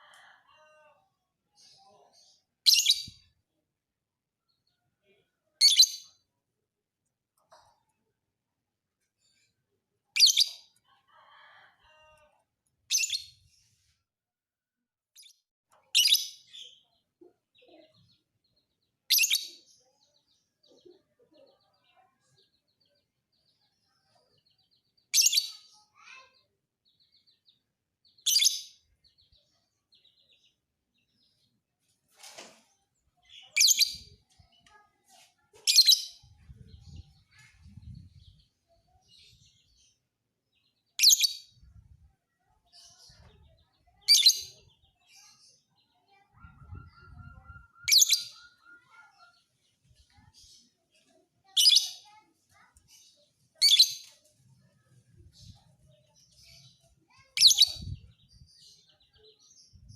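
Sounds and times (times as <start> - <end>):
lovebird chirping: 46.1 - 49.3.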